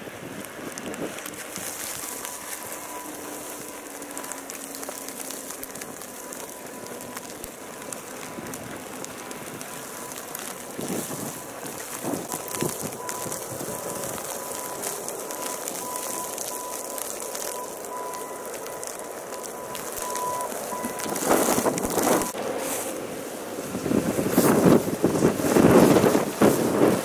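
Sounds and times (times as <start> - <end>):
wind-driven snow hissing: 0.0 - 27.0
louder rustles: 18.4 - 23.0.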